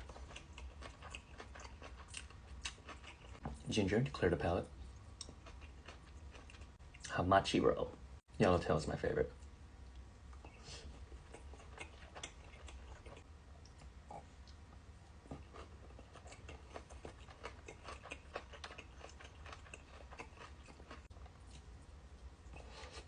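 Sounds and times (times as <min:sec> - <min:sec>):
person chewing: 0:00.0 - 0:03.4, 0:04.8 - 0:07.1, 0:09.8 - 0:23.0
low steady hum: 0:00.0 - 0:23.0.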